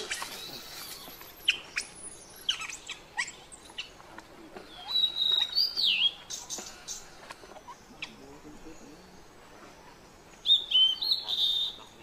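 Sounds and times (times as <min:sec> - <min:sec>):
birds chirping: 0:00.0 - 0:12.0
high whistled bird call: 0:04.8 - 0:06.5, 0:10.4 - 0:11.9.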